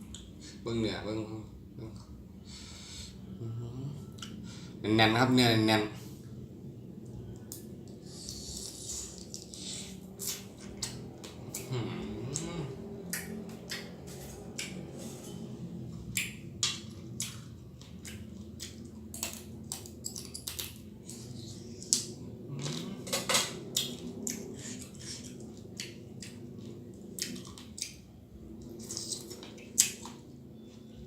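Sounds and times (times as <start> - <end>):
crab shell cracking and crunching: 16.2 - 21.2.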